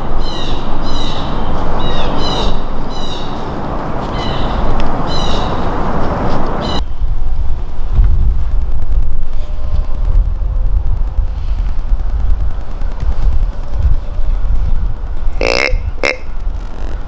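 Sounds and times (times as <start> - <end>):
loud steady noise: 0.0 - 17.0
bird calling in sharp notes: 15.3 - 16.3.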